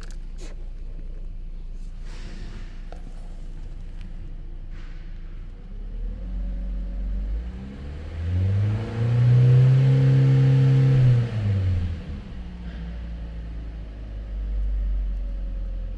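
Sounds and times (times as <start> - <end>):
car engine revving: 5.9 - 12.8.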